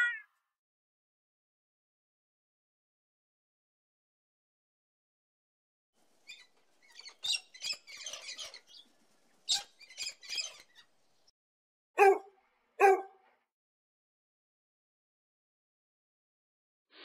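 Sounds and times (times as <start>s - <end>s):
lorikeet chattering: 9.5s - 10.9s
puppy yapping: 12.0s - 13.1s.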